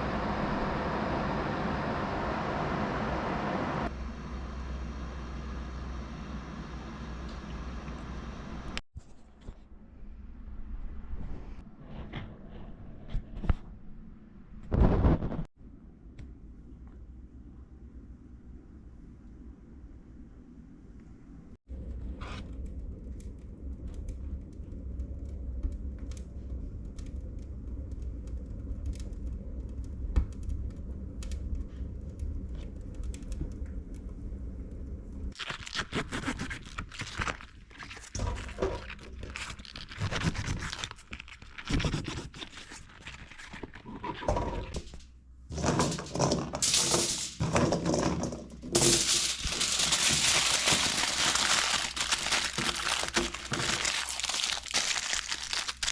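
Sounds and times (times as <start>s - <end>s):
low rumble: 9.8s - 35.4s, 45.0s - 55.9s
fire crackling: 21.7s - 42.4s, 44.9s - 55.9s.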